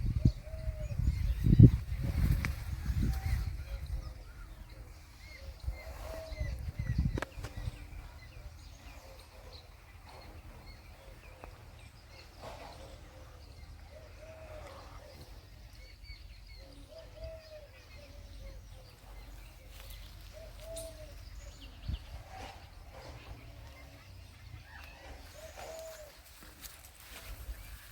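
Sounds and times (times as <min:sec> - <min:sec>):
birds low arched calls: 0:00.0 - 0:27.9.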